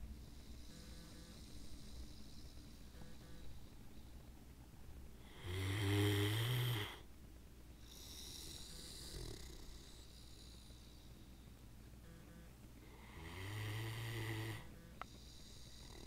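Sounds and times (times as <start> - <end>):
dog snoring: 0.0 - 3.7, 5.2 - 7.1, 7.8 - 11.1, 12.8 - 16.0
soft hissing breath: 0.0 - 11.9, 12.8 - 16.0.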